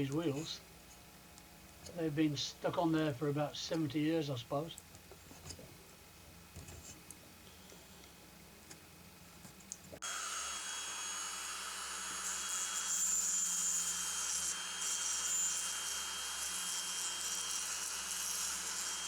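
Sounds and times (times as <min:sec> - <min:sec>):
tool hissing on metal: 0:10.0 - 0:19.0.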